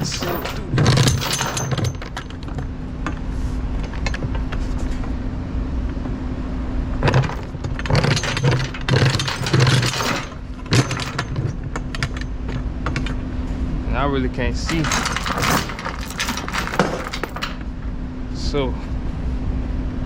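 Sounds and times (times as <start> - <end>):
steel chains clanking: 0.0 - 5.2, 7.0 - 13.2, 14.6 - 17.8
steady low hum: 0.0 - 20.0.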